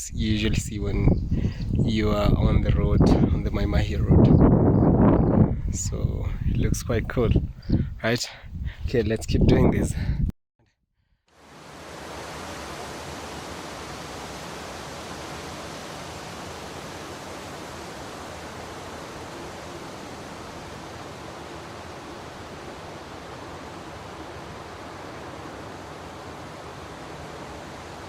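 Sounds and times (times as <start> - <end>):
steady rushing noise: 11.4 - 28.0.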